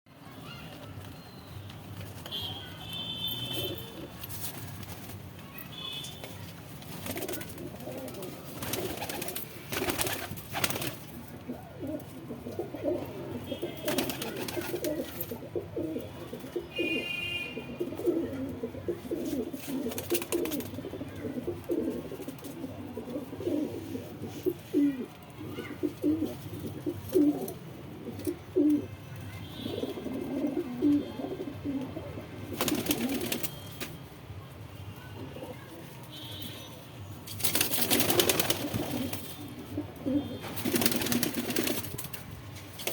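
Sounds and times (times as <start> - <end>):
wings flapping: 6.9 - 11.1, 13.8 - 15.0, 32.5 - 33.9, 37.4 - 39.2, 40.6 - 42.2
pigeons cooing: 7.1 - 28.9, 29.6 - 33.4.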